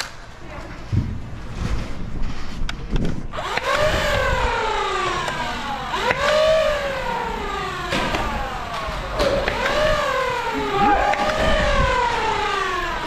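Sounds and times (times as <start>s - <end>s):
sharp clicks: 3.4s - 6.9s, 7.8s - 12.2s
siren wailing: 3.4s - 13.0s.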